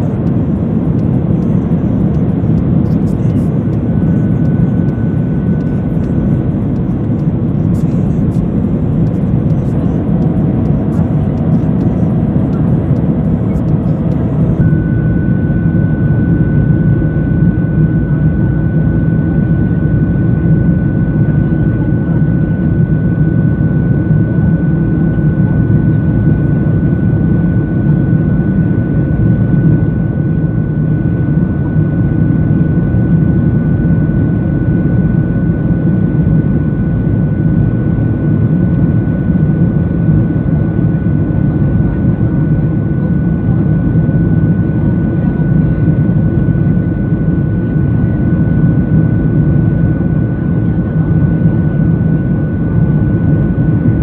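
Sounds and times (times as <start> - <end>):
aeroplane engine and airflow rumble: 0.0 - 54.0
thin high whine: 2.1 - 21.1.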